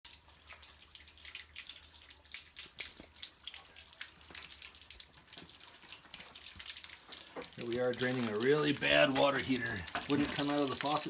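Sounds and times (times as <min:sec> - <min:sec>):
water splashing and dripping: 0:00.0 - 0:11.0.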